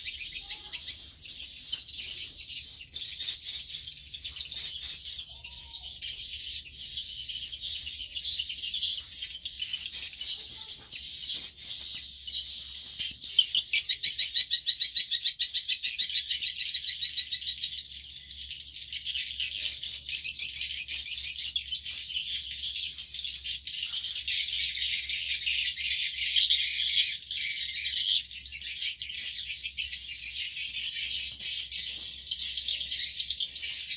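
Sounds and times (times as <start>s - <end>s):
high rattling bird trills: 0.0s - 33.9s.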